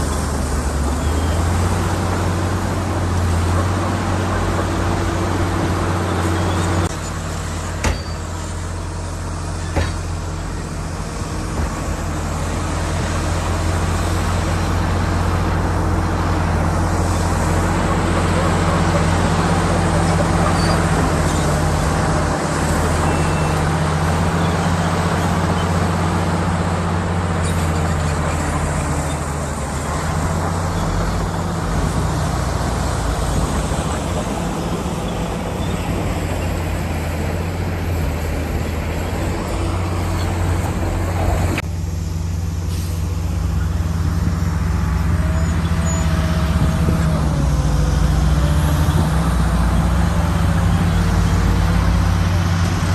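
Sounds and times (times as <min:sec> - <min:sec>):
bulldozer diesel engine running: 0:00.0 - 0:52.9
loud mechanical rattle and hiss: 0:39.0 - 0:48.0.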